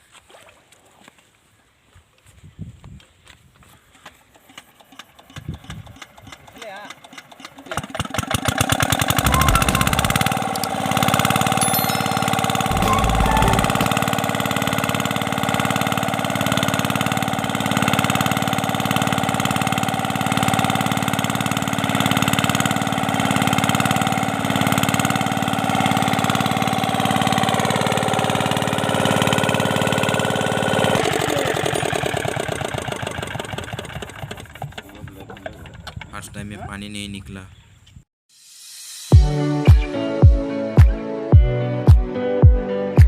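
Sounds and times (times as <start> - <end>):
diesel pump engine running: 7.8 - 11.6, 12.2 - 35.8.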